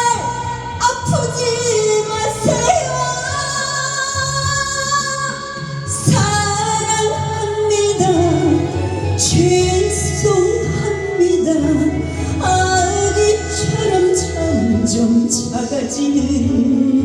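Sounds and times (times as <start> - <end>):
instrumental accompaniment: 0.0 - 17.0
woman singing a ballad: 0.0 - 17.0.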